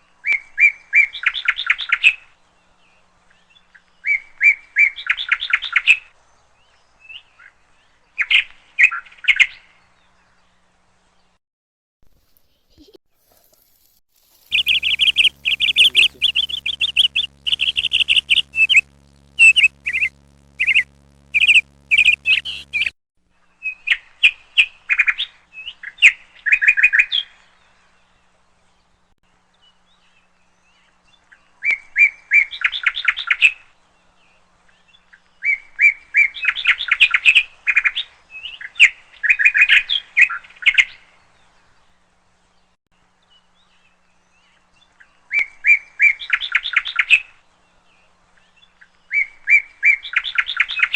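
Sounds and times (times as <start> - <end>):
small birds chirping: 12.2 - 22.9
faint low hum: 14.2 - 23.0.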